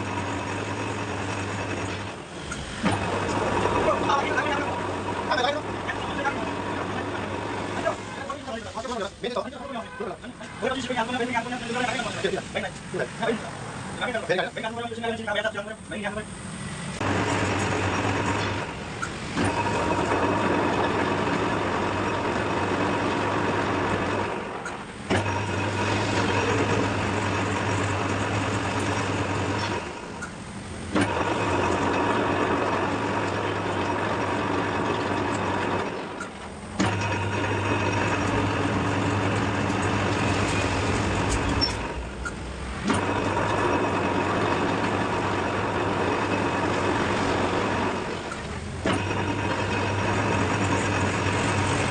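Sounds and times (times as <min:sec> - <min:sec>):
metal lathe motor running: 0:00.0 - 0:51.9
lathe starting click: 0:24.6 - 0:51.9.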